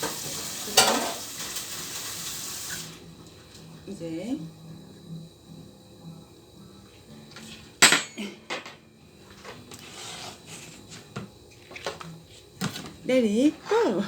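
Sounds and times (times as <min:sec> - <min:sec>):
cutlery and dishes clinking: 0:00.0 - 0:01.2, 0:07.8 - 0:08.8.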